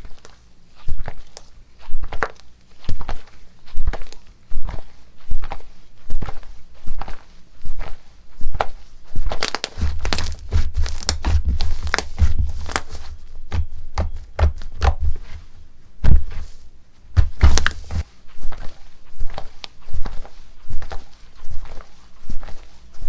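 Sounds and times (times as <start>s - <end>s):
slime clicks and crackling pops: 9.4s - 13.0s, 17.4s - 17.8s.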